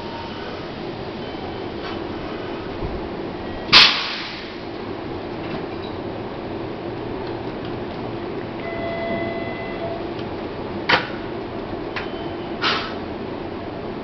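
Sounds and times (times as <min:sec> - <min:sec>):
train equipment humming: 0:00.0 - 0:14.0
brief high tone: 0:08.6 - 0:10.1.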